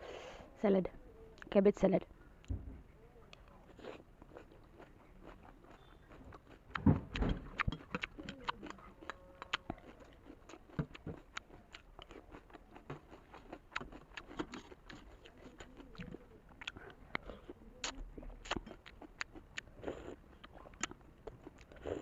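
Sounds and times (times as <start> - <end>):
crunchy cabbage bites: 3.7 - 16.8.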